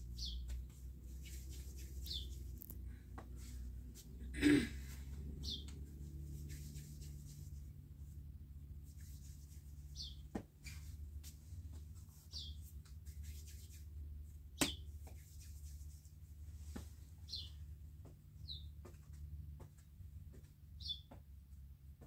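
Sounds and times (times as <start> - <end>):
small bird chirping: 0.1 - 2.8, 5.4 - 5.8, 9.8 - 10.9, 12.1 - 12.7, 17.2 - 17.6, 18.4 - 18.7, 20.8 - 21.1
hands tapping bread dough: 14.6 - 15.2.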